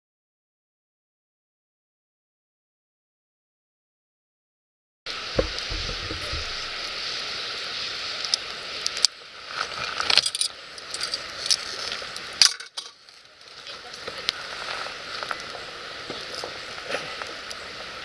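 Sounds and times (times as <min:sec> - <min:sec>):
wood fire crackling: 0:05.1 - 0:12.4, 0:13.0 - 0:18.0.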